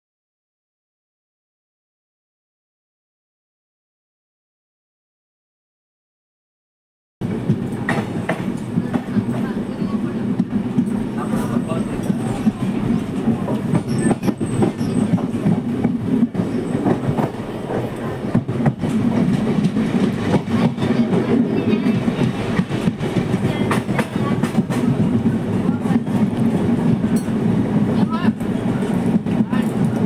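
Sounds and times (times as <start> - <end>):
train carriage rumbling: 7.2 - 30.0
wheels clattering on rails: 7.4 - 30.0.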